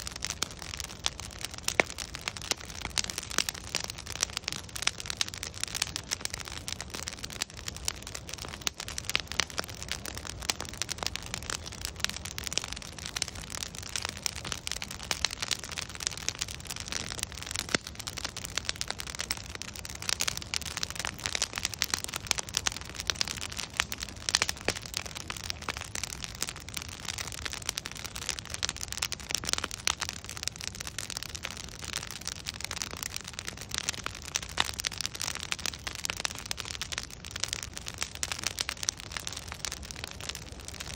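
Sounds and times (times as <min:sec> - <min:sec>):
logs crackling and popping: 0:00.0 - 0:40.9.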